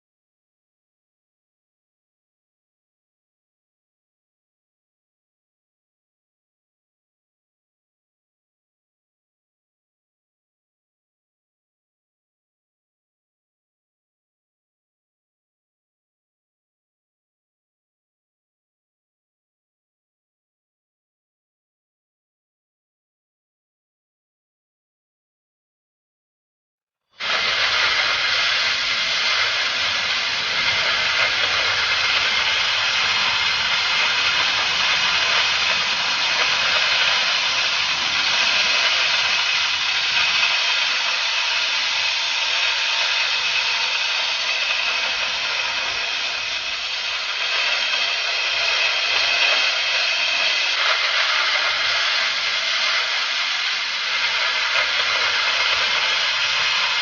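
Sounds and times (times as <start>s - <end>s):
cutting torch hissing: 27.1s - 57.0s.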